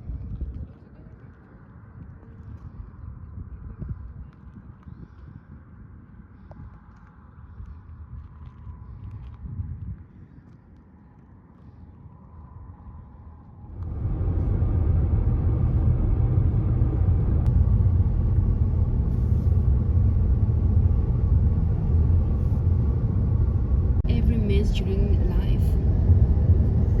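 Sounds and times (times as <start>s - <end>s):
faint ambience: 0.0s - 27.0s
car driving on road: 13.2s - 27.0s.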